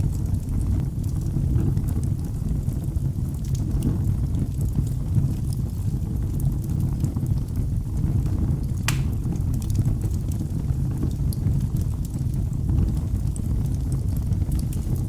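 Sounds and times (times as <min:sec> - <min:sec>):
wood fire crackling: 0:00.0 - 0:03.8, 0:04.5 - 0:15.0
fire pops: 0:08.8 - 0:10.2.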